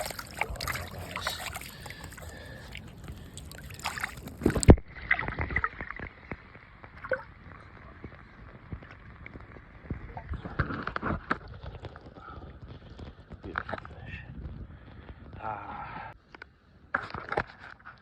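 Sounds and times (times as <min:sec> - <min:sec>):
creek water splashing: 0:00.0 - 0:07.6.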